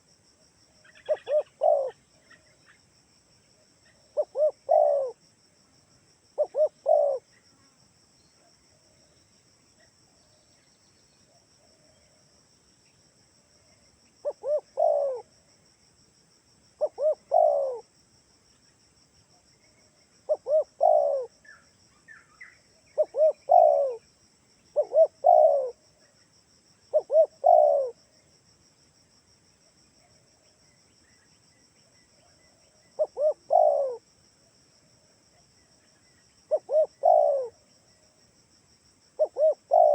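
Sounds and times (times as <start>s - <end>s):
dove cooing: 0.8s - 2.4s, 4.1s - 5.2s, 6.4s - 7.3s, 14.2s - 15.3s, 16.8s - 17.9s, 20.3s - 21.4s, 23.0s - 24.0s, 24.8s - 25.8s, 26.9s - 28.0s, 32.6s - 34.0s, 36.5s - 37.6s, 39.2s - 39.9s.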